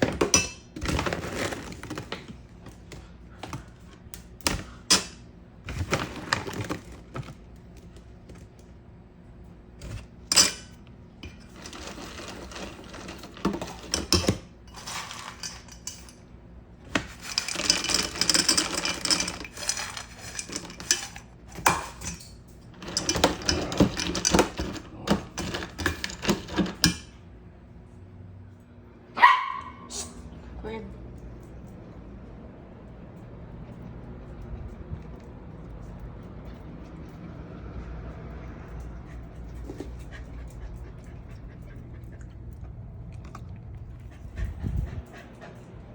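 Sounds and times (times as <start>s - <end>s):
hard objects clattering and clinking: 9.8s - 16.2s, 16.9s - 27.0s.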